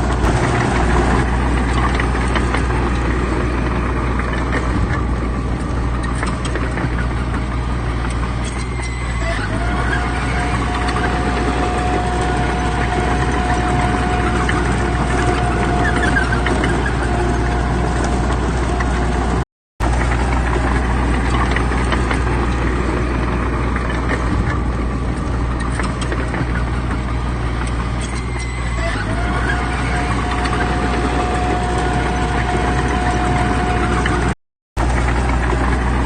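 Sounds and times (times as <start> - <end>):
diesel engine running under load: 0.0 - 36.0
thin steady whine: 29.2 - 34.3.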